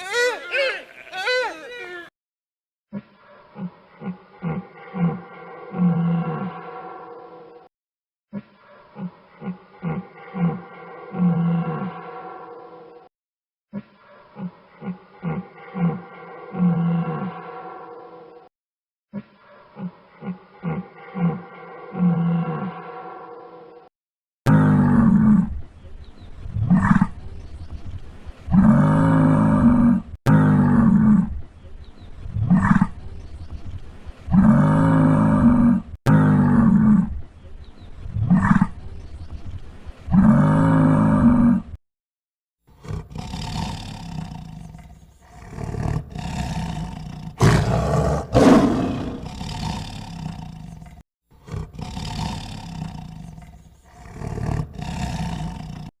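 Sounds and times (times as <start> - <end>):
irregular animal calls: 0.0 - 2.1
big cat roaring: 3.6 - 7.7, 9.0 - 13.1, 14.4 - 18.5, 19.8 - 23.8, 28.5 - 31.4, 34.3 - 37.2, 38.1 - 38.8, 40.1 - 41.8, 42.8 - 55.9
big cat grunting: 38.1 - 38.8, 42.7 - 55.9.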